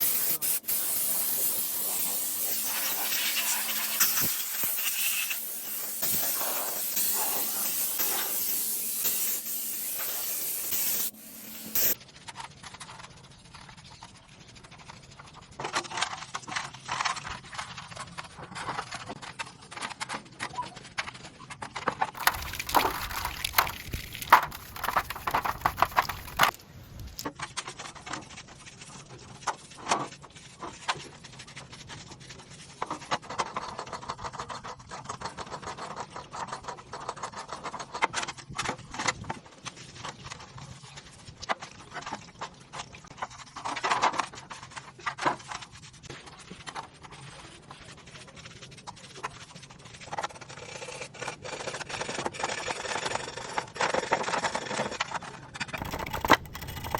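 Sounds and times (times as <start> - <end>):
hand tools and metal parts clattering: 1.4 - 12.0, 22.2 - 27.3, 55.8 - 56.9.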